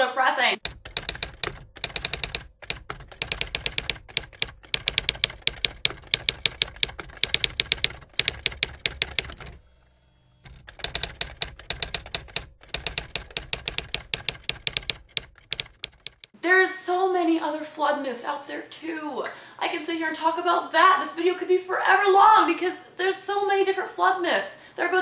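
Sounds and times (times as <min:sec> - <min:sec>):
rapid keyboard typing: 0:00.6 - 0:09.7, 0:10.4 - 0:16.4.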